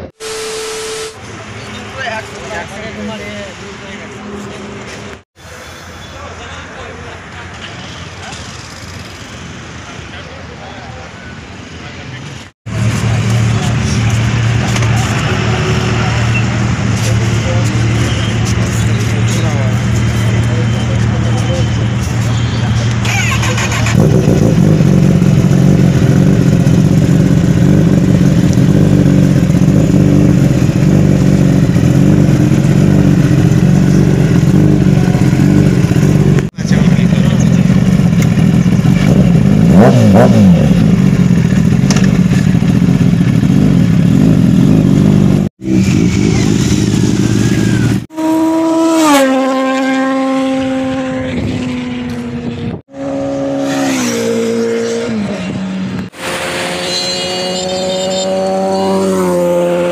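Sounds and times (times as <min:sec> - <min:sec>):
heavy riding noise: 0:00.0 - 0:56.8
motorcycle engine running: 0:12.7 - 0:54.6
motorcycle slowing down: 0:23.1 - 0:55.9.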